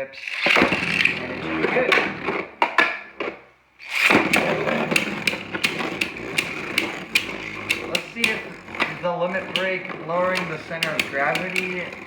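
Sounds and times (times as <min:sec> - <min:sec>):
sharp plastic clicks: 0:03.9 - 0:12.0.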